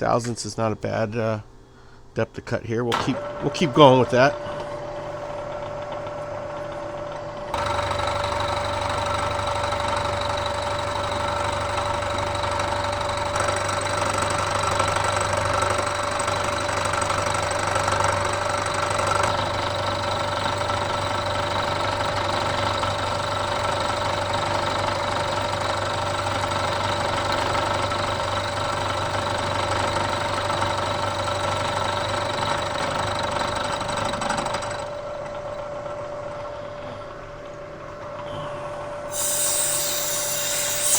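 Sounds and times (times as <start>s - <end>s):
milling machine spindle whine: 2.9s - 40.9s
end mill cutting metal: 7.5s - 34.9s, 39.1s - 40.9s.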